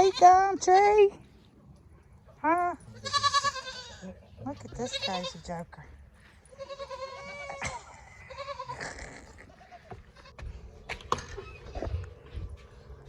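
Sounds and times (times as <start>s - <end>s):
goat bleating: 0.0s - 1.1s, 2.8s - 5.6s, 6.4s - 10.5s.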